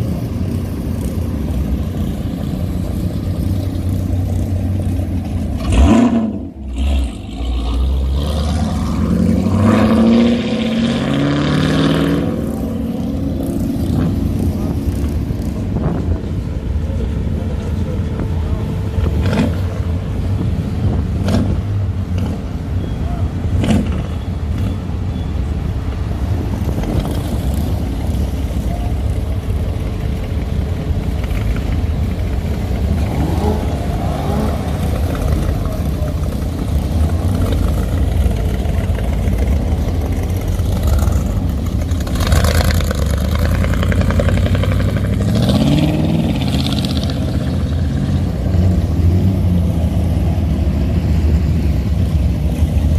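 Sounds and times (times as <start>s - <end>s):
hot rod engines rumbling: 0.0s - 52.9s
engine revving: 1.8s - 16.2s, 31.1s - 52.9s.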